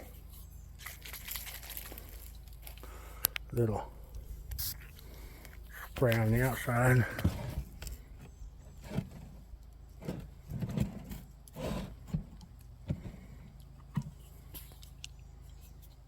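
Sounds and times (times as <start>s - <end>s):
handling noises: 0.0s - 3.4s.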